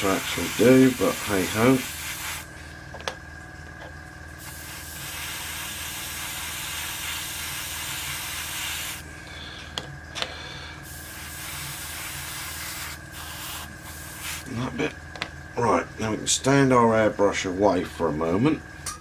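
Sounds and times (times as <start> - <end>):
airbrush spraying: 0.0 - 2.5, 4.4 - 9.0, 10.8 - 14.7.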